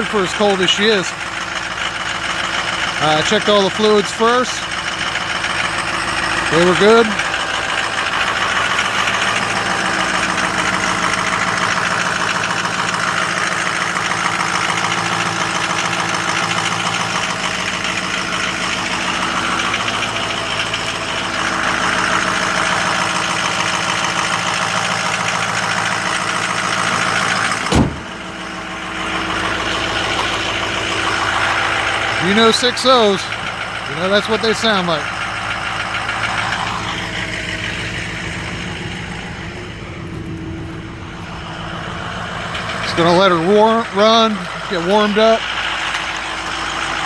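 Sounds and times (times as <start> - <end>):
diesel engine idling: 0.0 - 47.0
single thump: 27.6 - 28.2.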